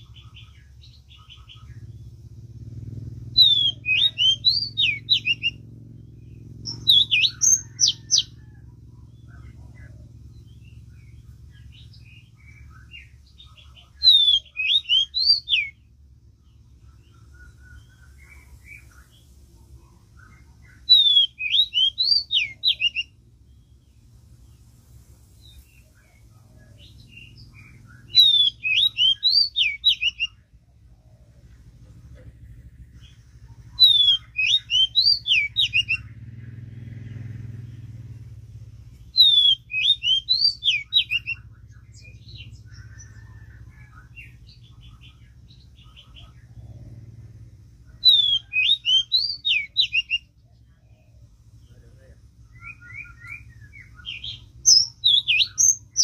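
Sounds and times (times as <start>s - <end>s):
faint bird chirps: 0.0s - 56.0s
bird whistling song: 3.2s - 19.3s, 20.2s - 24.6s, 25.4s - 31.3s, 32.9s - 36.2s, 38.9s - 46.9s, 47.9s - 51.2s, 52.4s - 56.0s.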